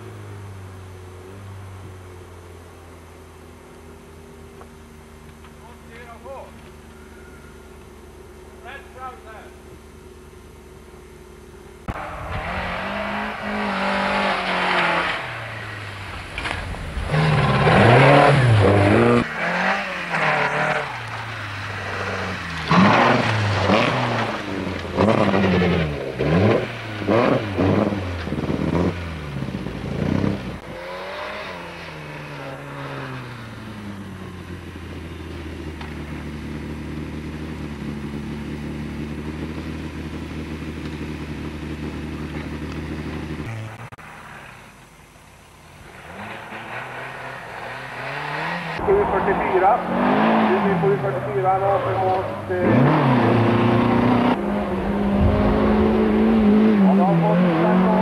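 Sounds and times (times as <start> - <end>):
rally car engines revving: 0.0 - 44.9, 45.6 - 58.0
cars rushing past: 11.8 - 36.2, 45.8 - 58.0.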